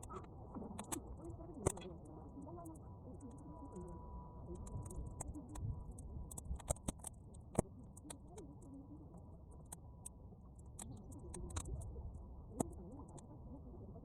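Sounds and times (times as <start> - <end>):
bonfire crackling: 0.0 - 3.5, 4.4 - 8.3, 9.4 - 13.2
steady low rumble: 0.0 - 14.0.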